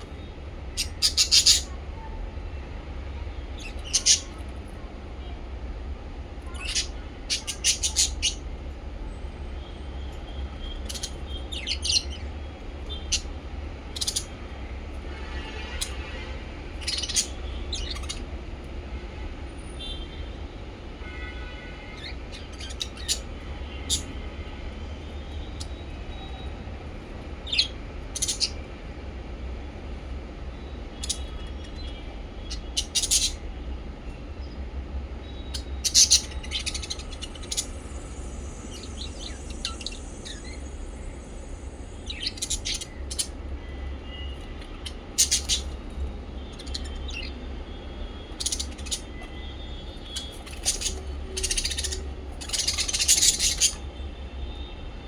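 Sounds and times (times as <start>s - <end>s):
parrots chirping: 0.0s - 1.8s, 3.6s - 4.7s, 6.4s - 8.5s, 9.6s - 18.3s, 21.1s - 24.2s, 25.1s - 26.5s, 27.4s - 28.7s, 30.6s - 33.5s, 35.2s - 41.2s, 41.8s - 54.9s.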